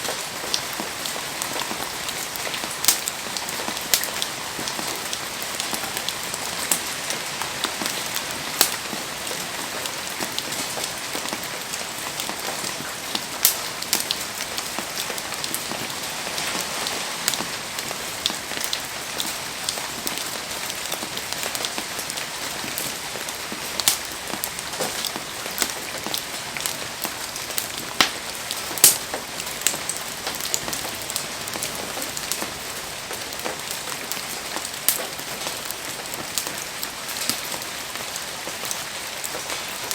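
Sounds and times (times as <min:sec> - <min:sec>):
heavy rain falling: 0:00.0 - 0:39.9
sharp pops and clicks: 0:28.8 - 0:29.1.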